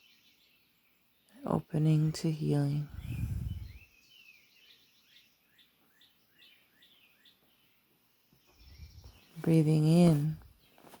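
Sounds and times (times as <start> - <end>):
songbird chirping: 0.0 - 11.0
brief low rush: 3.0 - 3.8.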